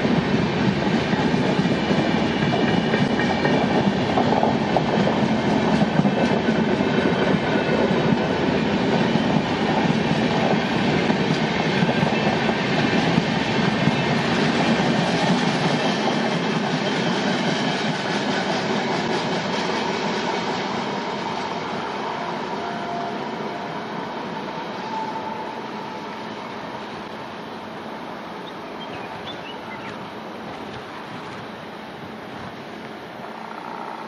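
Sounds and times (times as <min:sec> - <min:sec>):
clickety-clack over rail joints: 0:00.0 - 0:21.5
train wheels rumbling on rails: 0:00.0 - 0:34.0.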